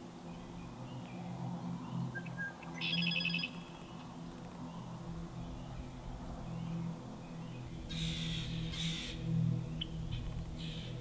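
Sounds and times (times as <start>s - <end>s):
songbird trill: 0.2s - 11.0s
thin bird whistle: 2.2s - 3.5s.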